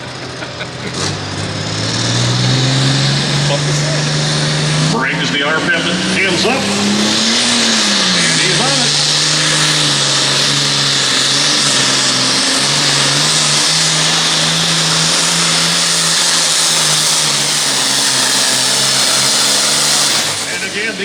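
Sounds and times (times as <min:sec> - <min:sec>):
diesel tractor engine at full throttle: 0:00.0 - 0:21.0.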